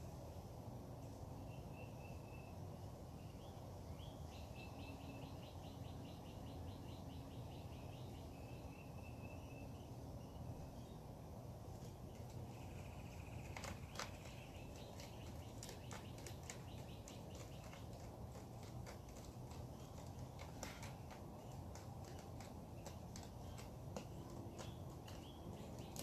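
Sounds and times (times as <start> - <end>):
birdsong trilling: 12.1 - 26.0.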